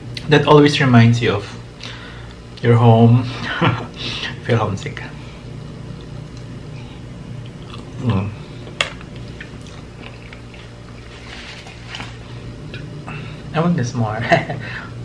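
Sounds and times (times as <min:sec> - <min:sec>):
person chewing crunchy snack: 0:07.4 - 0:08.3, 0:08.9 - 0:12.8.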